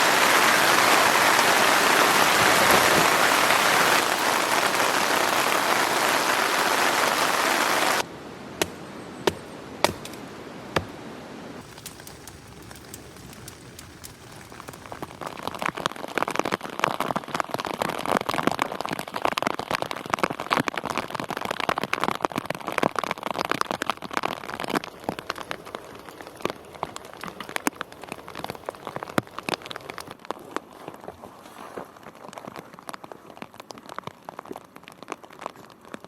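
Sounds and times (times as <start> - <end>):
heavy rain falling: 0.0 - 8.6, 11.6 - 30.2.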